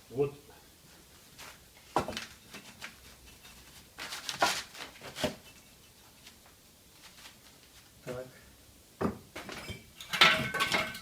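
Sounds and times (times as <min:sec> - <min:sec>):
knocks and scrapes of handling: 0:01.4 - 0:06.4.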